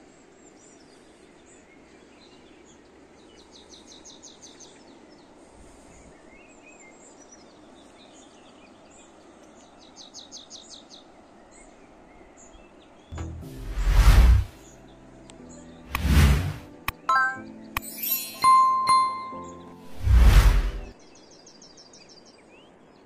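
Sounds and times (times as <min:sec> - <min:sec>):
steady background hiss: 0:00.0 - 0:13.1
birds chirping: 0:00.0 - 0:23.0
songbird rapid repeated notes: 0:13.1 - 0:14.8, 0:15.9 - 0:21.0.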